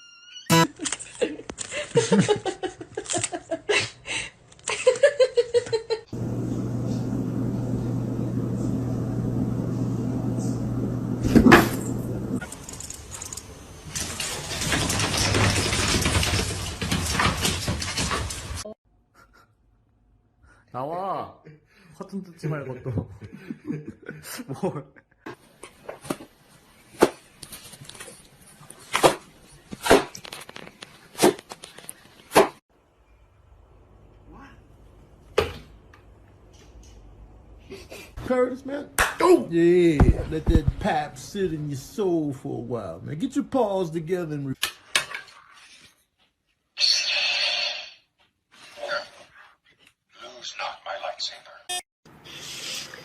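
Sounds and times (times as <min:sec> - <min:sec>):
steady machine hum: 0:06.1 - 0:12.4.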